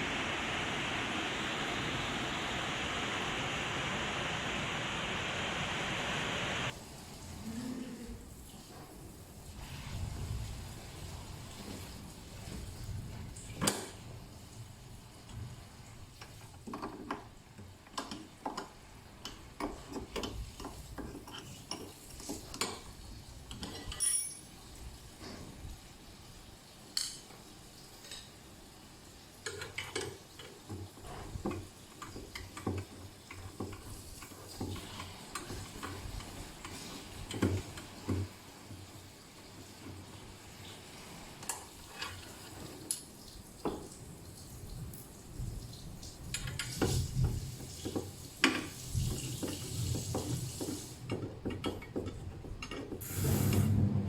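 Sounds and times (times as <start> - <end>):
metallic clinks of tools: 23.8 - 24.6.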